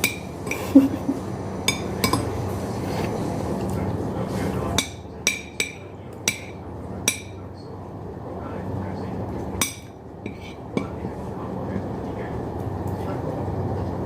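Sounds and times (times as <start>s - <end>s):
utensils clinking against dish: 0.0s - 1.0s, 1.6s - 7.4s, 9.6s - 11.1s.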